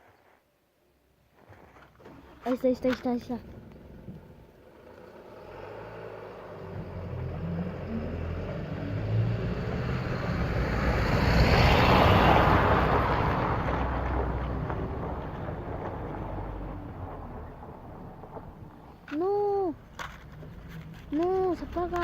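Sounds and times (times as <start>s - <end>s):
vehicle passing by: 2.5s - 19.0s.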